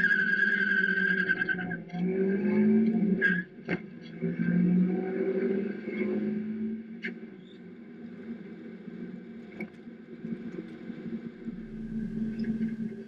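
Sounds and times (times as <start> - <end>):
car engine cruising: 8.6 - 13.0
low rumble: 10.5 - 13.0.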